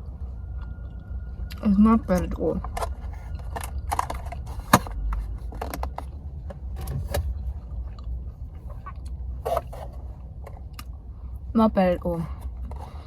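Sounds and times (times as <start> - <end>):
steady low rumble: 0.0 - 13.0
person chewing: 10.6 - 11.0.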